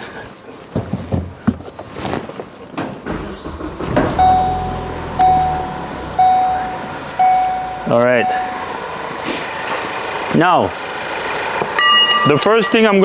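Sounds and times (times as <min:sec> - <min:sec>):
car engine starting and running: 0:03.0 - 0:11.8
dashboard warning chime beeping: 0:03.4 - 0:10.3, 0:11.8 - 0:13.0.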